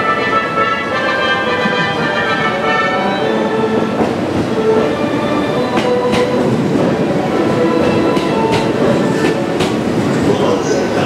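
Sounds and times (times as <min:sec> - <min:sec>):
train wheels rumbling on rail: 0:00.0 - 0:11.0
wheels clacking over rail joints: 0:05.6 - 0:10.4.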